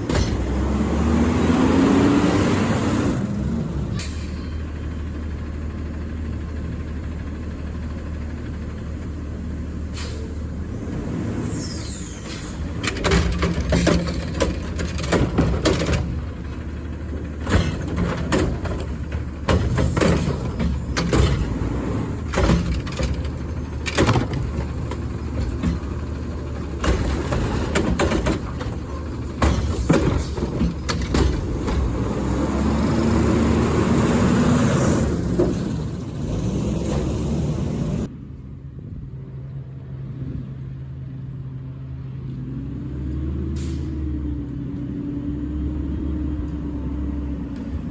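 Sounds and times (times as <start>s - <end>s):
garbage truck engine: 0.0s - 38.2s, 41.1s - 47.9s
loud metallic clanks and bangs: 12.5s - 32.8s.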